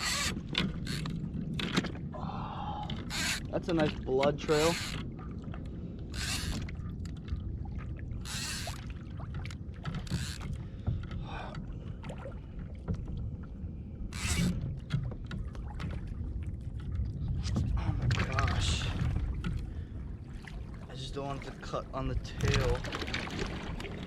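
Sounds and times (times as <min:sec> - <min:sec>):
water splashing against kayak: 0:00.0 - 0:24.0
wind rumble on microphone: 0:00.0 - 0:24.0.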